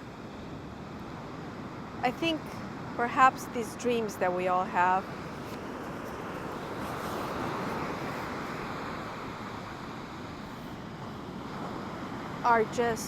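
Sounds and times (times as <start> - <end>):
ocean surf washing ashore: 0.0 - 13.0.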